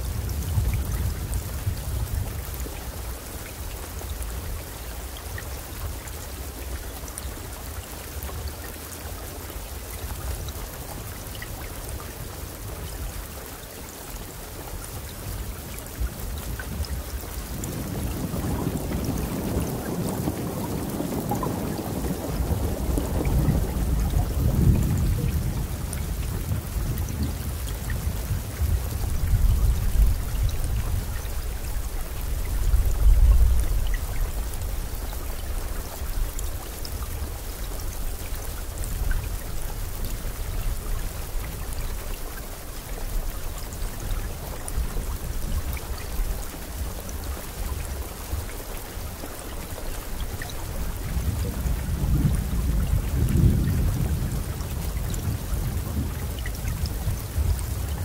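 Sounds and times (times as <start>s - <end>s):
steady rain falling: 0.0s - 58.0s
thunder rumbling: 17.5s - 31.2s, 51.1s - 58.0s.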